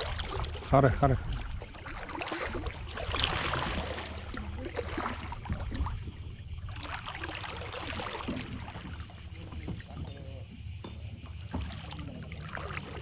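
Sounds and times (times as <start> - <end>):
kayak paddle splashing: 0.0 - 13.0
steady low rumble: 3.8 - 7.0.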